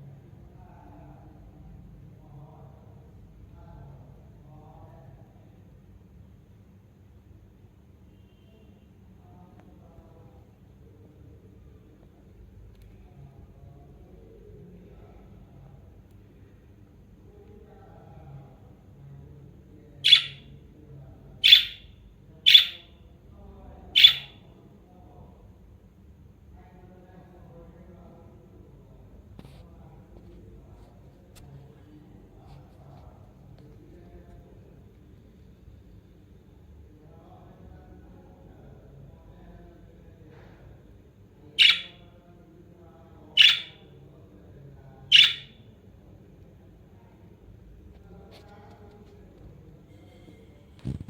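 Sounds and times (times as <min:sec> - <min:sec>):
budgerigar shrill chirps: 0:20.0 - 0:20.5, 0:21.4 - 0:21.9, 0:22.5 - 0:22.9, 0:24.0 - 0:24.4, 0:41.6 - 0:42.0, 0:43.4 - 0:43.8, 0:45.1 - 0:45.6.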